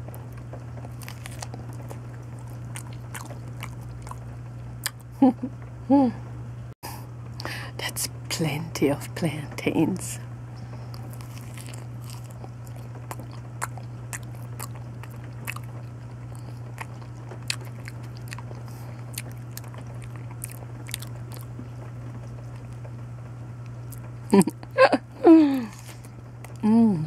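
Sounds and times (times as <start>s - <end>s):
steady low hum: 0.0s - 27.0s
wet chewing mouth clicks: 0.9s - 4.2s, 10.9s - 21.5s.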